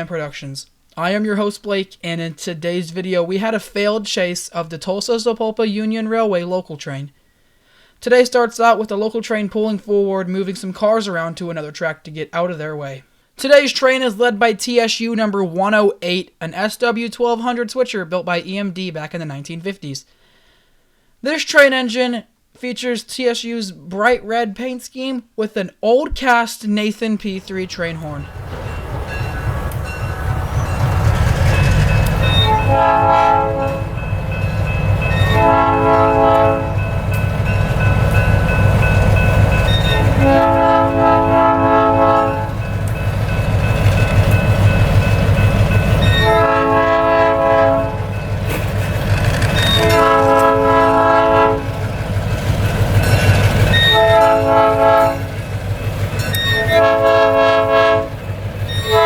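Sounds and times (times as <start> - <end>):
diesel engine low rumble: 27.4 - 35.1
locomotive air horn blasts: 32.3 - 34.2, 35.0 - 37.0, 39.7 - 42.6, 46.0 - 48.2, 49.6 - 51.8, 53.8 - 55.3, 56.5 - 58.2, 58.8 - 59.0.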